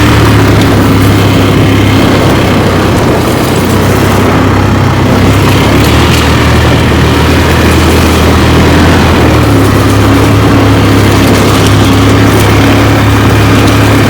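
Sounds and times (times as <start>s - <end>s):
quad bike engine running: 0.0s - 14.0s.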